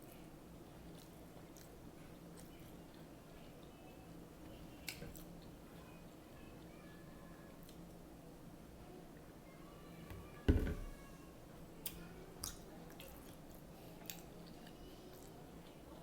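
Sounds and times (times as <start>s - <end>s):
person chewing: 0.7s - 3.7s
loud thump: 10.5s - 11.0s.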